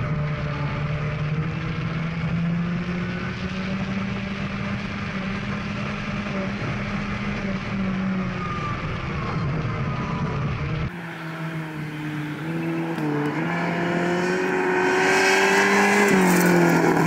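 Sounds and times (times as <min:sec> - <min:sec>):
rally car engine: 0:00.0 - 0:17.0.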